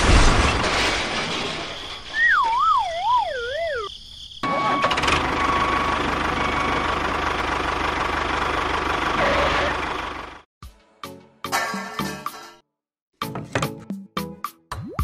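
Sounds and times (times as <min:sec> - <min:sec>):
cartoon falling whistle: 0:02.1 - 0:03.9
tractor engine chugging: 0:04.4 - 0:10.4.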